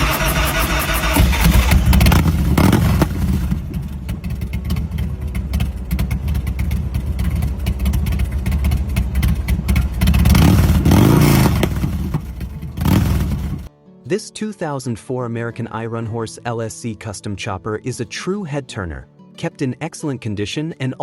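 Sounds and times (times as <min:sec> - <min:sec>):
motorcycle engine idling and revving: 0:00.0 - 0:13.7.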